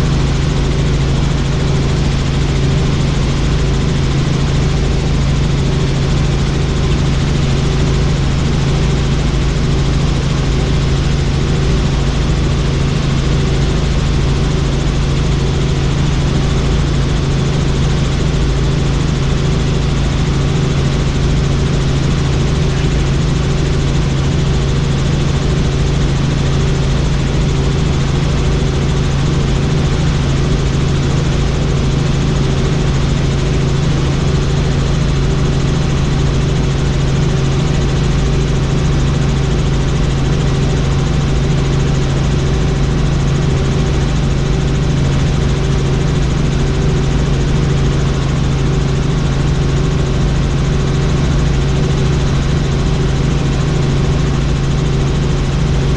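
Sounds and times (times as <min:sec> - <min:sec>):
helicopter rotor and turbine drone: 0:00.0 - 0:55.9.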